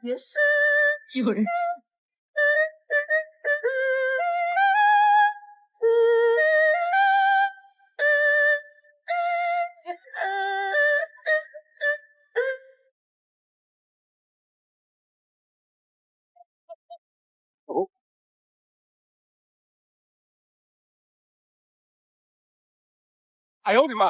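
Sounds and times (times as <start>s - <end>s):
high-pitched voice singing: 0.0s - 1.8s, 2.4s - 12.7s.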